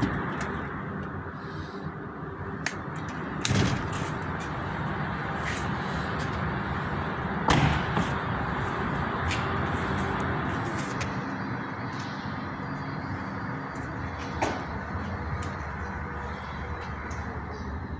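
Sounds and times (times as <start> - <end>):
loud thuds: 7.4 - 8.4.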